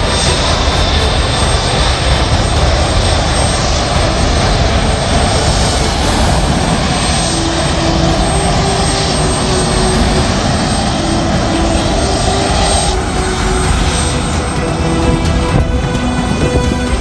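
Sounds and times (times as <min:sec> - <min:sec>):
aircraft engines running: 0:00.0 - 0:17.0.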